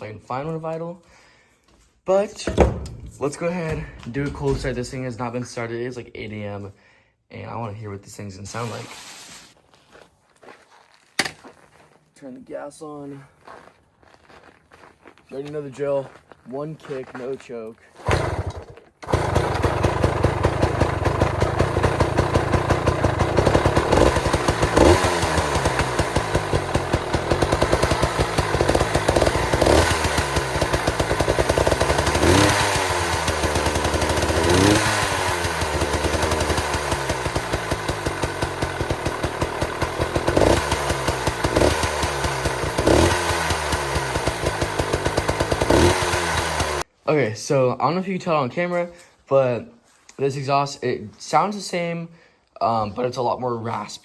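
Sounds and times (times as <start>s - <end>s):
two-stroke engine idling and revving: 18.0s - 46.9s.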